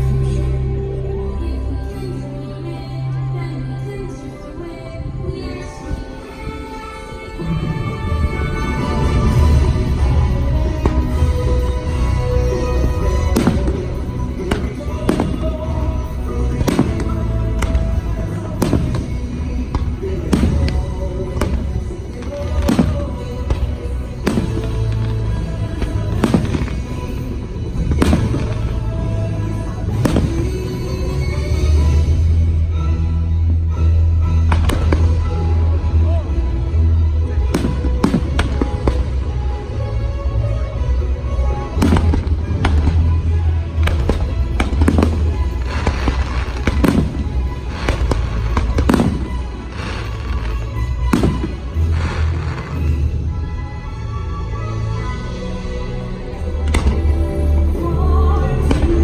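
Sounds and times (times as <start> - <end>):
show music over loudspeakers: 0.0 - 59.0
fireworks bangs: 7.8 - 32.4, 34.5 - 36.4, 37.4 - 39.8, 41.6 - 53.6, 56.2 - 59.0.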